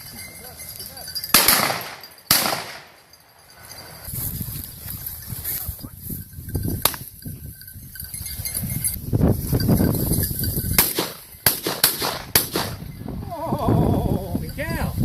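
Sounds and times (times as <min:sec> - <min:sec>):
wind buffeting microphone: 0:03.6 - 0:15.0.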